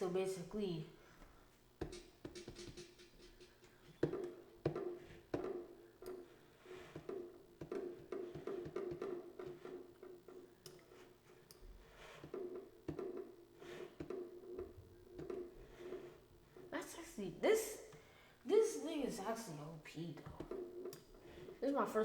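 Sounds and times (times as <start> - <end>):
clicky percussive beat: 1.8 - 6.3, 6.9 - 13.3, 20.3 - 21.5.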